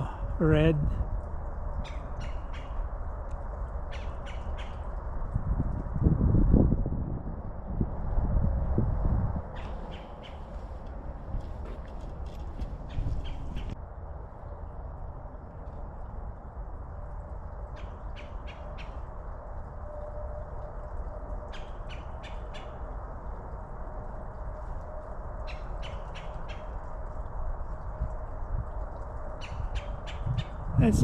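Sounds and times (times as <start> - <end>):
bird calling in harsh notes: 9.6 - 10.6.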